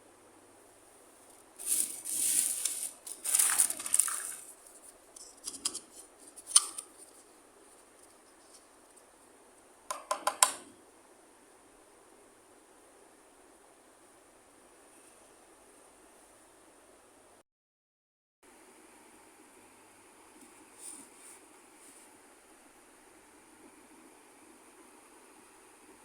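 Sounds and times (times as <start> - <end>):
scissors cutting plastic packaging: 1.6 - 4.5
small plastic pieces rattling: 1.6 - 4.6.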